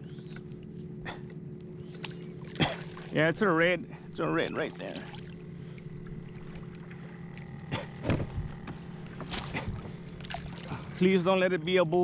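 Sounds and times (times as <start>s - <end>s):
steady low hum: 0.0s - 12.0s
water lapping against kayak hull: 1.8s - 12.0s
sharp knocks and splashes: 1.9s - 3.2s, 9.1s - 10.9s.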